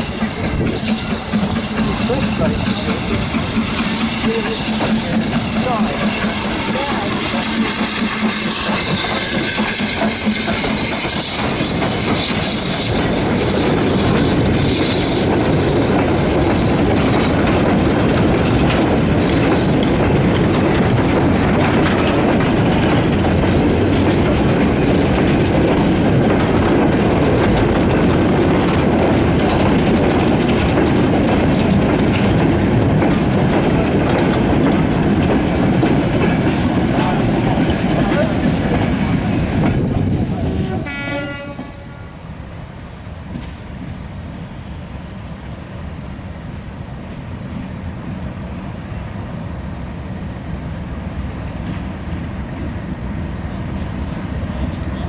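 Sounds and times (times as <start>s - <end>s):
freight train rumble: 0.0s - 55.0s
wheels clattering over rail joints: 0.0s - 55.0s.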